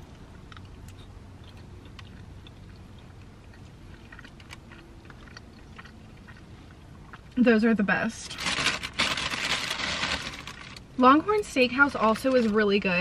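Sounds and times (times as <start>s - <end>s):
low steady hum: 0.0s - 13.0s
chewing food: 0.1s - 7.5s.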